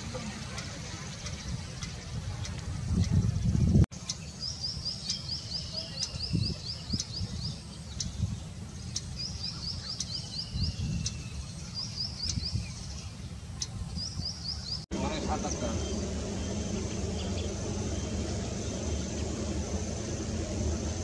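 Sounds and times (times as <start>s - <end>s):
low background rumble: 14.0s - 21.0s.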